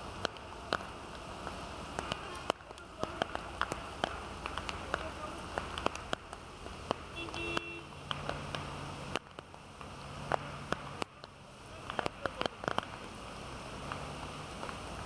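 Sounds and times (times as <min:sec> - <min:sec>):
heavy rain hissing: 0:00.0 - 0:15.0
low vehicle engine hum: 0:00.0 - 0:15.0
raindrops clicking: 0:00.0 - 0:15.0.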